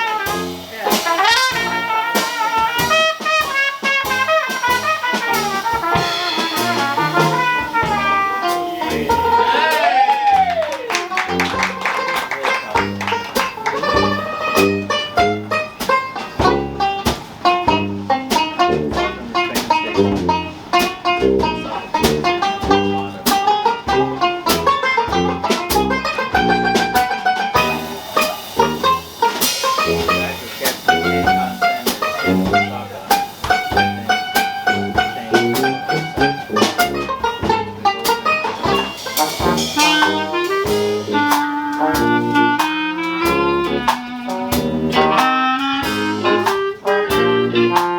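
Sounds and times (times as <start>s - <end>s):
jazz band playing: 0.0s - 47.9s.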